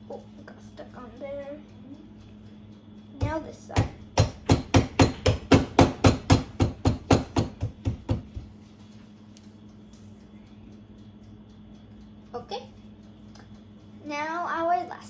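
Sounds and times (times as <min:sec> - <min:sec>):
mallet pounding chocolate on board: 0:03.2 - 0:08.5.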